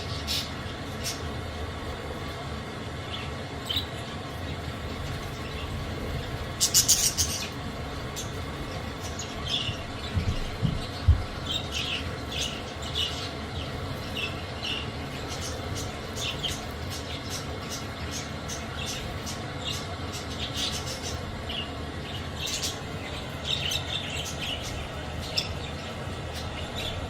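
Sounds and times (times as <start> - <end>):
steady background hum: 0.0 - 27.0
budgerigars chirping: 6.6 - 27.0
low thumps: 9.8 - 11.6.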